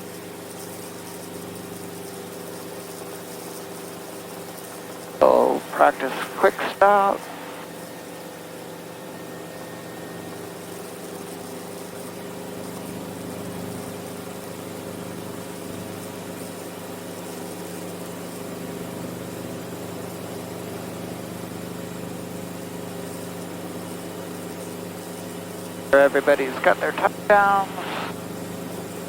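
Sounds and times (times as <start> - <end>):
helicopter engine and rotor drone: 0.0 - 29.0.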